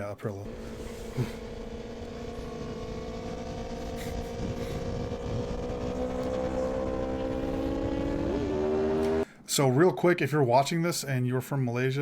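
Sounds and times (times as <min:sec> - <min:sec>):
motorcycle engine at high revs: 0:00.5 - 0:09.2.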